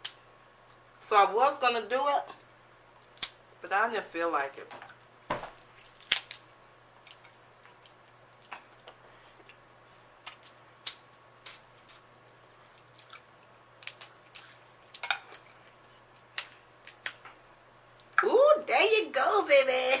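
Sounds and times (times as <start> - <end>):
wet chewing and mouth smacks: 7.0 - 9.6, 10.2 - 17.2.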